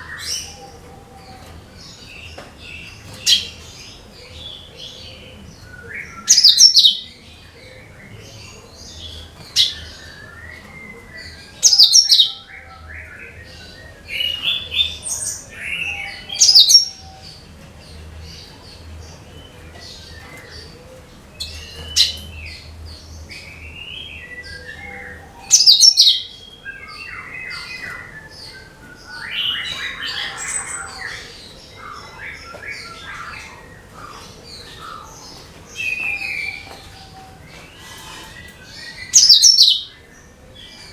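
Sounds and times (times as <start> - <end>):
bird whistled phrases and chatter: 5.1 - 17.4, 23.4 - 40.1
bird twittering: 23.5 - 36.8, 37.8 - 40.0.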